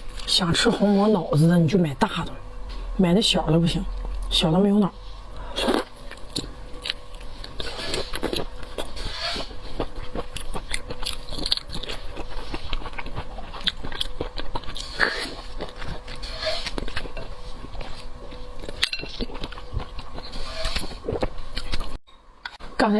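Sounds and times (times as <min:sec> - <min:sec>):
wet chewing and lip smacks: 0:05.7 - 0:22.0.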